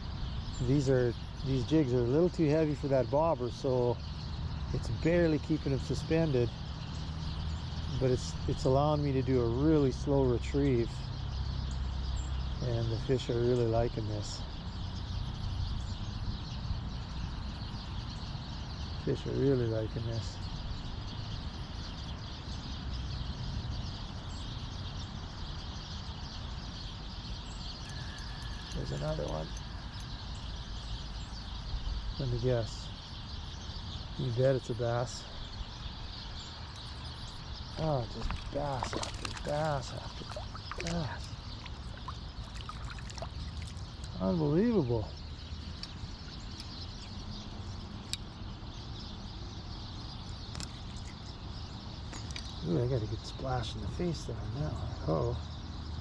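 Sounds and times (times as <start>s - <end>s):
creek water flowing: 37.6s - 44.6s.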